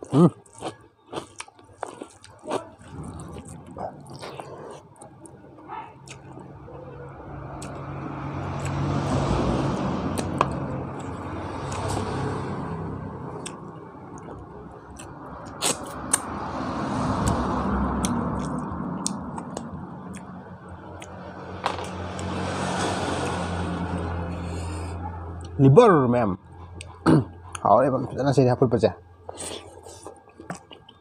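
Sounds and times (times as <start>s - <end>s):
chewing food: 0.0s - 6.5s, 7.5s - 12.6s, 13.3s - 16.3s, 17.2s - 22.3s, 29.2s - 31.0s.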